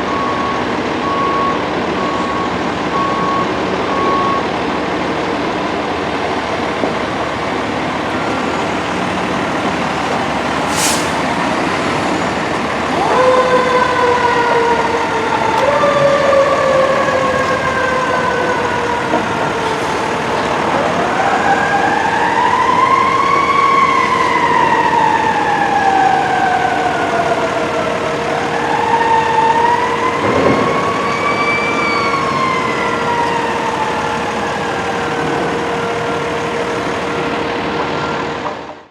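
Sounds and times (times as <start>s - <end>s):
truck engine running: 0.0s - 22.0s
fire truck siren wailing: 0.0s - 38.9s
street noise: 0.0s - 38.9s.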